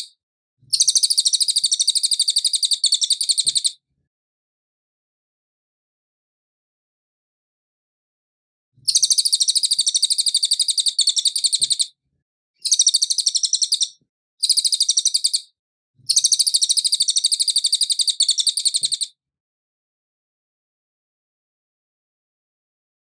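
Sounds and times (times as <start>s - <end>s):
songbird chattering: 0.8s - 3.7s, 8.9s - 11.9s, 12.6s - 15.5s, 16.1s - 19.1s.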